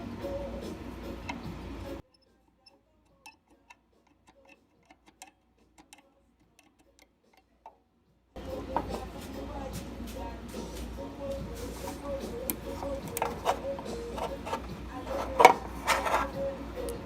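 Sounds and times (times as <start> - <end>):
steady hum with held tone: 0.0 - 3.4, 8.4 - 17.0.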